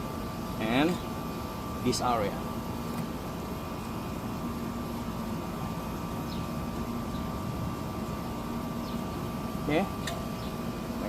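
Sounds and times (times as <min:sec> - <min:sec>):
background hum and rumble: 0:00.0 - 0:11.0.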